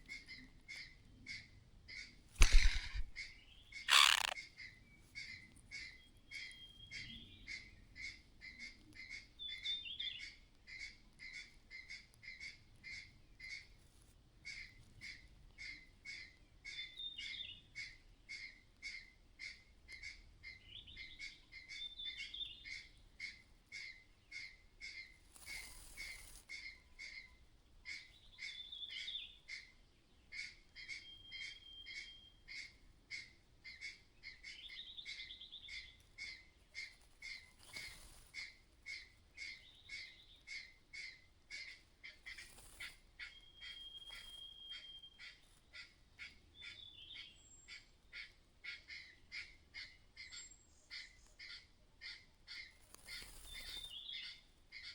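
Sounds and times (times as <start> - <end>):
bird clattering alarm call: 2.4 - 3.2, 3.9 - 4.4
brief rustle: 2.4 - 3.2, 3.9 - 4.4
short warbled bird calls: 2.4 - 3.2, 3.9 - 4.4.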